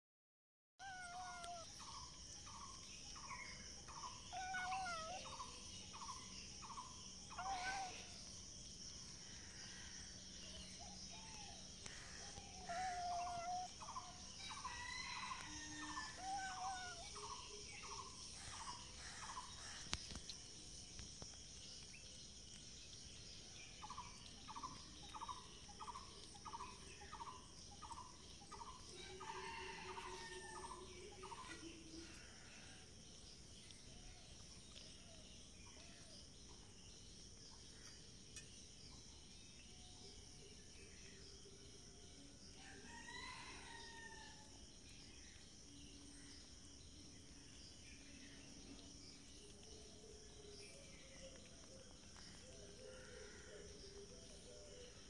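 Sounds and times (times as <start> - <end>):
bird calls: 0.8 - 2.0, 2.6 - 8.2, 10.5 - 20.4
high insect drone: 0.8 - 55.0.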